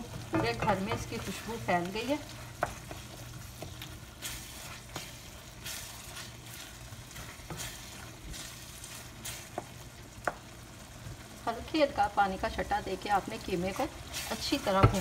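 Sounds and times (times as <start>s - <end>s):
meat sizzling in oil: 0.0s - 15.0s
spatula knocking on pan: 0.2s - 1.3s, 14.7s - 15.0s
spatula scraping a pan: 2.2s - 9.7s, 13.6s - 15.0s.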